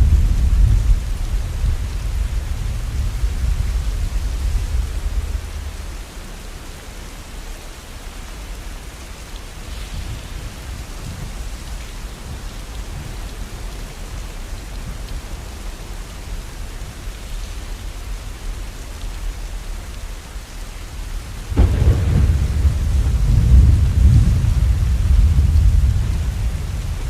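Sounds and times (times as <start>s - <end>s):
rain falling: 0.0s - 27.0s
low rumble: 21.6s - 27.0s.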